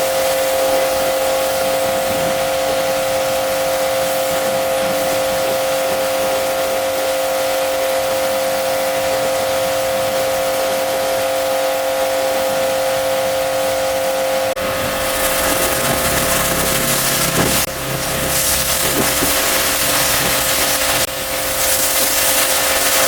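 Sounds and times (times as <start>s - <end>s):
cleaning machine motor whine: 0.0s - 23.0s
low hum: 14.3s - 22.4s.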